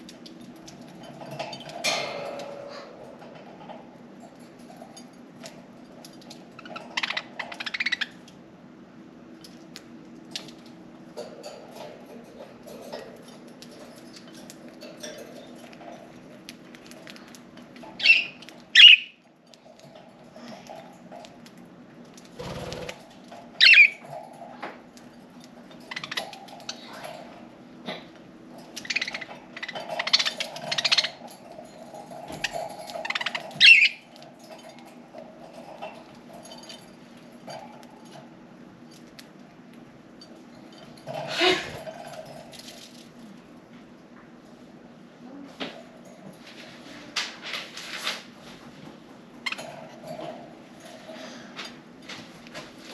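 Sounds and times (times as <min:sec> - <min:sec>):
budgerigars chirping: 0:18.0 - 0:19.1
soft warbling chatter: 0:25.8 - 0:38.2.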